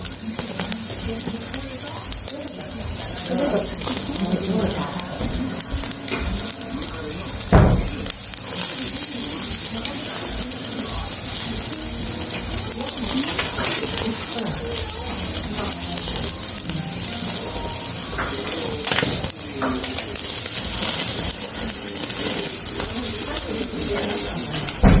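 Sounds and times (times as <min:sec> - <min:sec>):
meat sizzling on a grill: 0:00.0 - 0:25.0
indistinct voices: 0:00.2 - 0:25.0.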